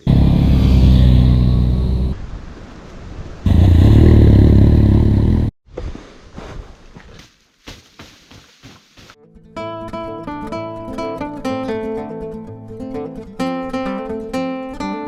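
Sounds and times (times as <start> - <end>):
motorcycle engine running loudly: 0.0 - 2.2.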